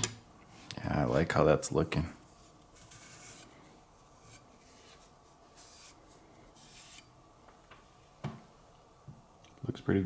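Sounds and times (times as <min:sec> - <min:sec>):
rubbing strokes on knife blade: 0:04.2 - 0:07.1.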